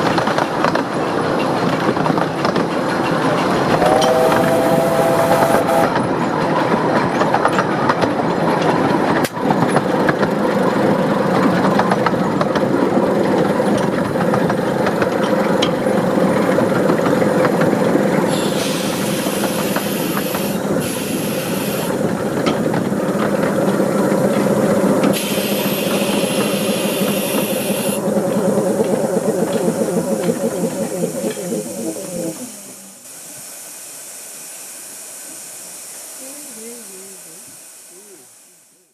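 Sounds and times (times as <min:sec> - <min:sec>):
steam locomotive running: 0:00.0 - 0:38.9
steam hissing: 0:03.2 - 0:06.1, 0:15.8 - 0:38.9.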